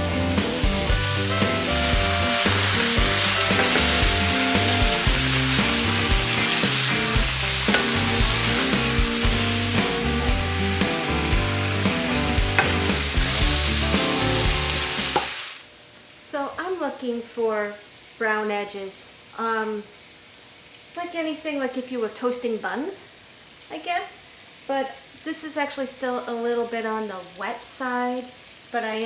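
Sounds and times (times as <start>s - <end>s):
background music with bass: 0.0s - 15.2s
vegetables sizzling in oil: 0.0s - 29.0s
spatula stirring in skillet: 1.2s - 15.4s.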